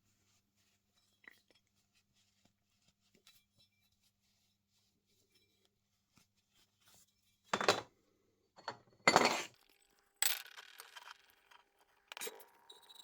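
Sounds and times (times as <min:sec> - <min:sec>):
metal tools clinking and clattering: 0:07.6 - 0:07.9, 0:08.6 - 0:09.5.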